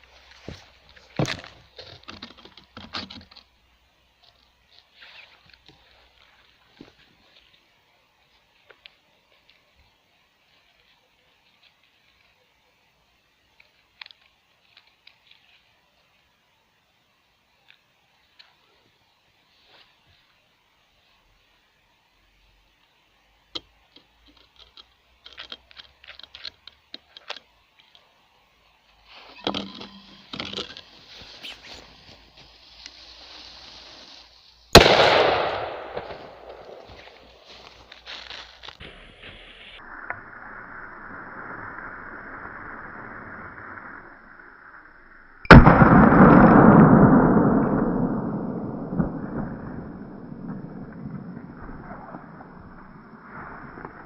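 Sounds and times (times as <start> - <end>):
faint steady hiss: 0.0 - 54.0
rumbling noise: 39.8 - 54.0
sudden loud bang: 45.5 - 51.3.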